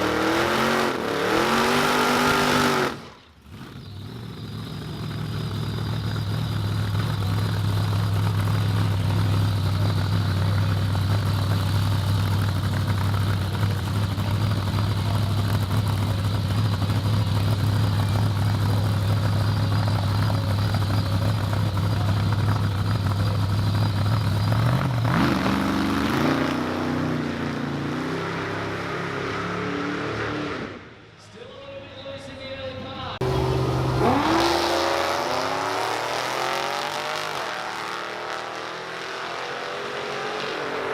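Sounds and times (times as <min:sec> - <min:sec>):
drag car engine revving: 0:00.0 - 0:30.9, 0:33.2 - 0:40.9
car accelerating through gears: 0:33.2 - 0:40.9.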